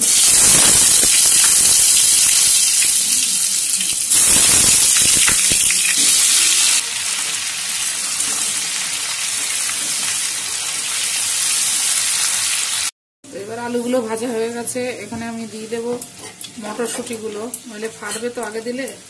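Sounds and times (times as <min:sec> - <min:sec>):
potatoes sizzling in hot oil: 0:00.0 - 0:12.9.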